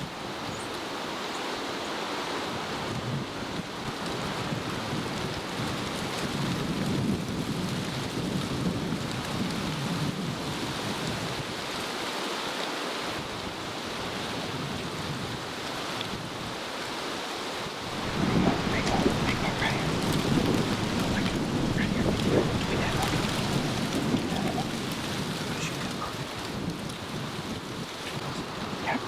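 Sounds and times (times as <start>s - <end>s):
wind buffeting microphone: 2.8s - 11.4s, 17.7s - 29.0s.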